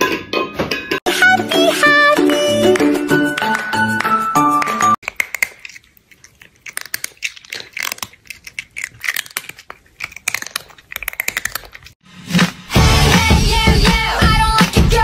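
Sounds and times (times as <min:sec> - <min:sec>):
music: 0:00.0 - 0:05.0, 0:12.1 - 0:15.0
crunchy chewing: 0:05.0 - 0:12.0.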